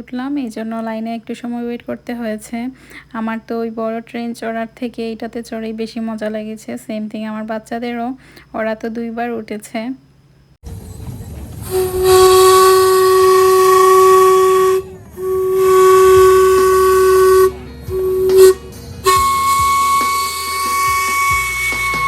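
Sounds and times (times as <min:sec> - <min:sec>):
train whistle blowing: 0:11.6 - 0:22.0.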